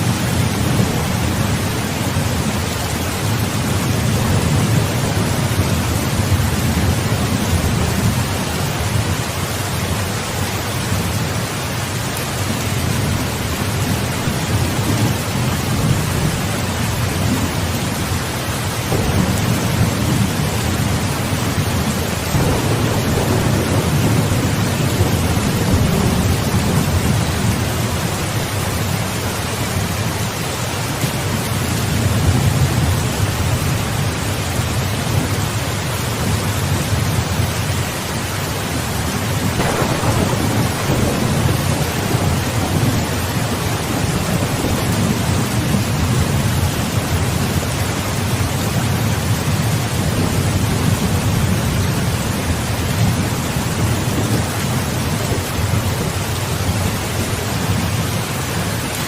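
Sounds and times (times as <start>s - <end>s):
low rolling thunder: 0.0s - 9.2s, 18.7s - 29.2s, 38.8s - 56.1s
heavy rain: 0.0s - 59.0s
sharp thunder crack: 18.9s - 21.1s, 21.7s - 27.2s, 39.4s - 45.4s.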